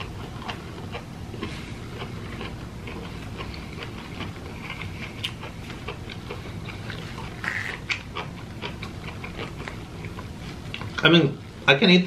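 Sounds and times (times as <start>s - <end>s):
wet chewing and lip-smacking: 0.0s - 11.0s
steady low hum: 0.0s - 12.0s.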